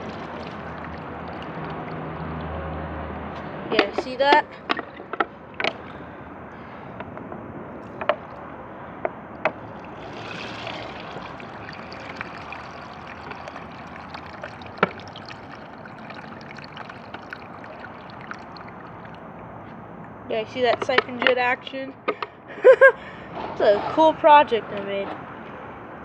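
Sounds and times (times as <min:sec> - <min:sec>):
toilet flushing: 0:00.0 - 0:02.4, 0:09.3 - 0:19.6.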